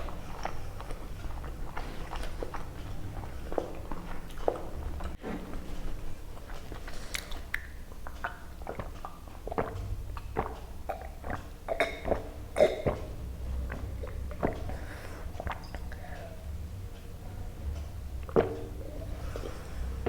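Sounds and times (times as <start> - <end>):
mouth smacks and chewing: 0.0 - 5.2, 5.8 - 20.0.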